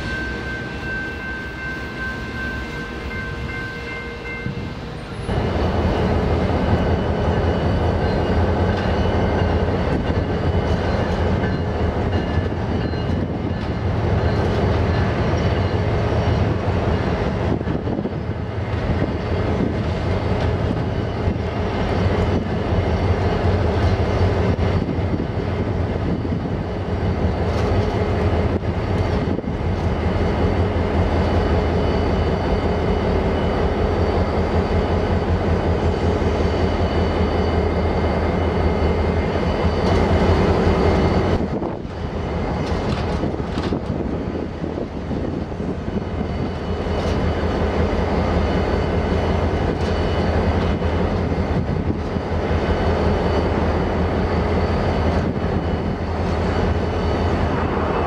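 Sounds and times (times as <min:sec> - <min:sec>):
diesel locomotive drone: 0:00.0 - 0:58.0.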